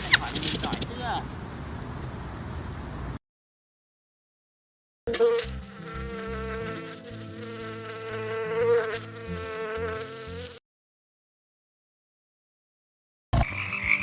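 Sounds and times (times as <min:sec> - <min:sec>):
insect buzzing in flight: 0:00.0 - 0:01.0, 0:05.1 - 0:10.6.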